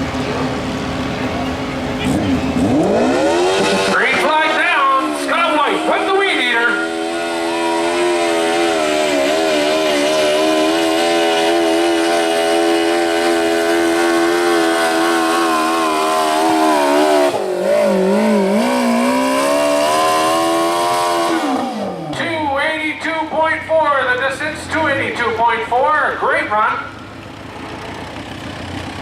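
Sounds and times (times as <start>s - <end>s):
lawn tractor engine at high revs: 0.0s - 22.3s.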